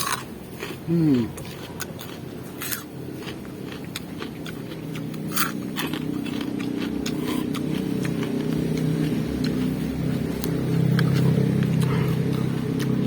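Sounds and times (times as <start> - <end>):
raw vegetables crunching being chewed: 0.0 - 13.0
motor engine hum: 0.3 - 13.0.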